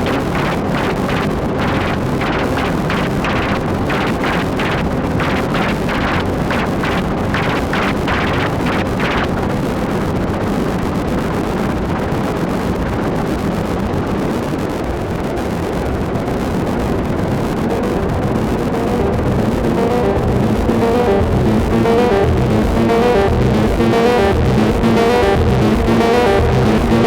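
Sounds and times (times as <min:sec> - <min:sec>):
pulses of bright noise: 0:00.0 - 0:09.3, 0:16.7 - 0:27.0
synthesizer noise drone: 0:00.0 - 0:09.4, 0:16.4 - 0:27.0.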